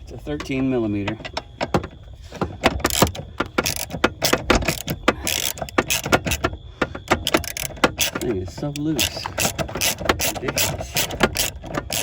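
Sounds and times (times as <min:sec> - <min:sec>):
ratchet wrench clicking: 0:02.8 - 0:06.5, 0:07.1 - 0:12.0.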